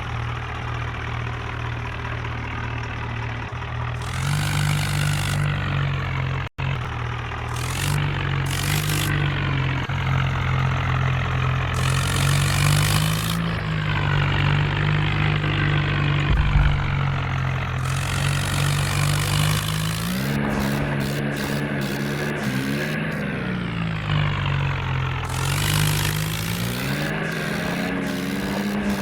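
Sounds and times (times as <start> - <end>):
tractor diesel engine running: 0.0 - 29.0
low thud: 16.2 - 18.7.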